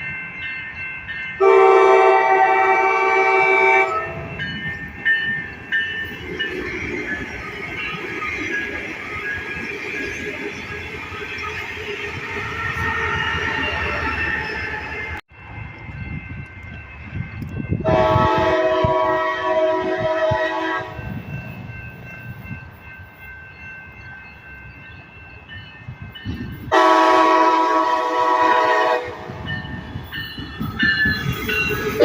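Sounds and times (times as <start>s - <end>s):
moving train rumble: 0.0s - 32.0s
train horn blasts: 1.4s - 4.2s, 17.8s - 21.2s, 26.7s - 29.5s.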